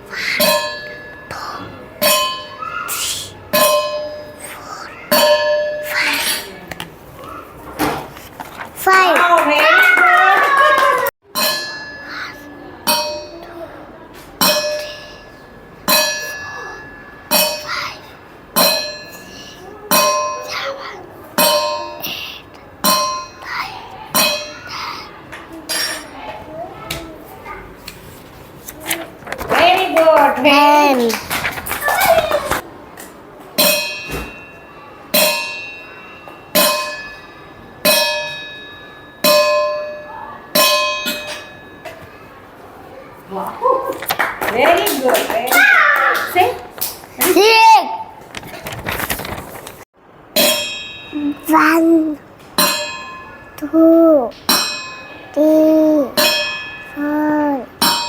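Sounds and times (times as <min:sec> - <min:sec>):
metal bell ringing: 0:11.3 - 0:13.4, 0:33.6 - 0:42.0, 0:50.4 - 0:52.0, 0:52.6 - 0:53.6, 0:54.4 - 0:55.4, 0:56.2 - 0:57.0.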